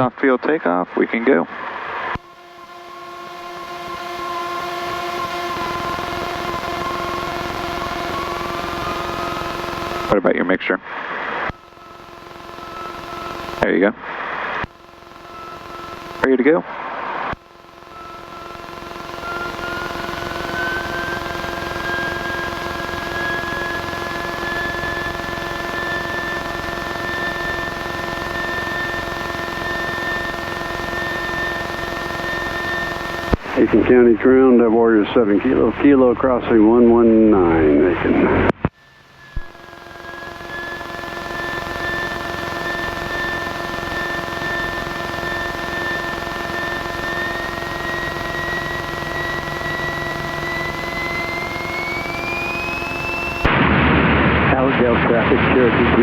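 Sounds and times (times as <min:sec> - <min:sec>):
aircraft engine drone in cabin: 0:01.5 - 0:10.2, 0:17.4 - 0:53.6.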